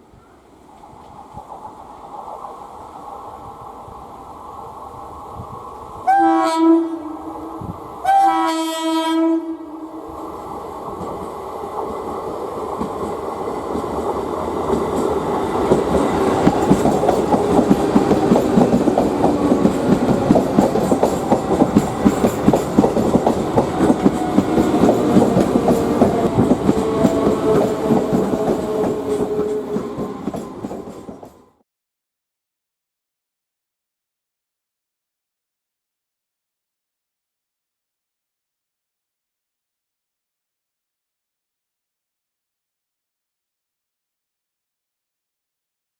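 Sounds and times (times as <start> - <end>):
locomotive horn blasts: 6.1 - 7.4, 8.0 - 10.0
train wheel clatter: 10.8 - 31.6.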